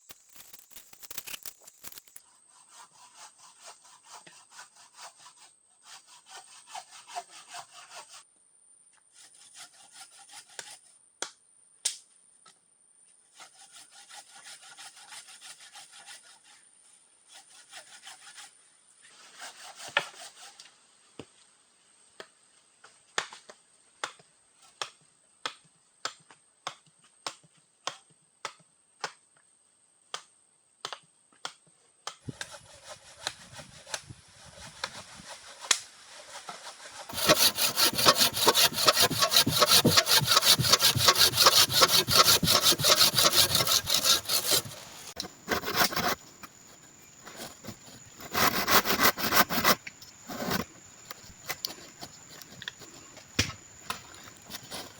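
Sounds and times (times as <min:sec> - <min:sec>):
saw cutting through wood: 0:32.3 - 0:54.9.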